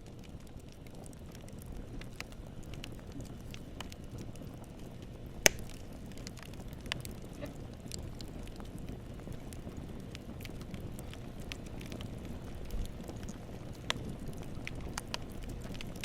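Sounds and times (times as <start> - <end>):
campfire crackling: 0.0 - 16.0
loud pop of burning wood: 5.4 - 7.0.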